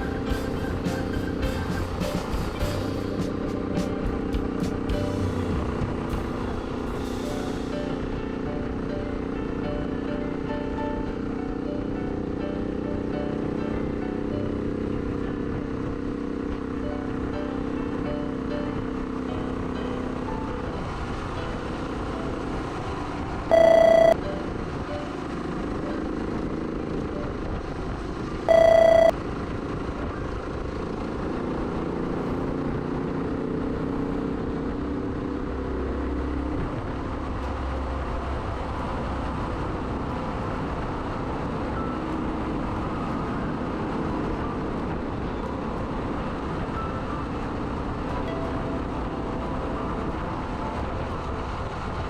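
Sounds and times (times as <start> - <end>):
wind and road noise: 0.0 - 23.5, 29.2 - 52.0
loud buzzy beeps: 23.5 - 24.2, 28.5 - 29.1.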